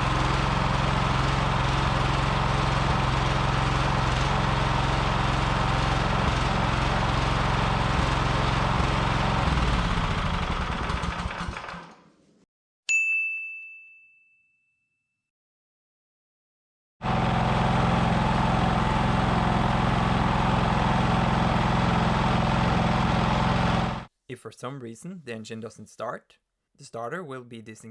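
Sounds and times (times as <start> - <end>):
small engine running: 0.0 - 12.1, 17.0 - 24.1
bright ding: 12.9 - 15.2.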